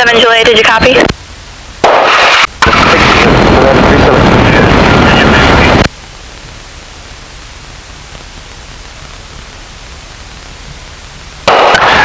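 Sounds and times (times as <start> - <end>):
loud burst of static: 0.0 - 12.0
steady radio hiss: 0.0 - 12.0.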